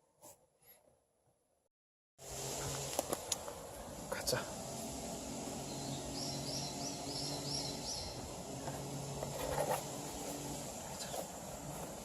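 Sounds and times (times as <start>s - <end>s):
steady low hum: 2.2s - 12.0s
bird chirping: 5.6s - 8.8s.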